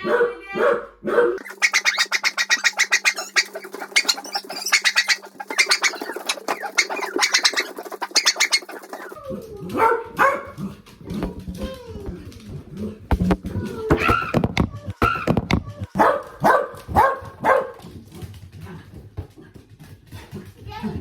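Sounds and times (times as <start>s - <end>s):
bird chirping in trills: 1.4s - 9.1s.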